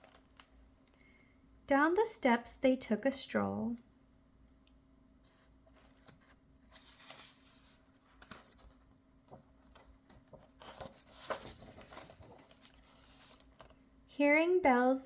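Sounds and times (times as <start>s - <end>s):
book pages rustling: 0.0s - 0.6s, 5.3s - 13.8s.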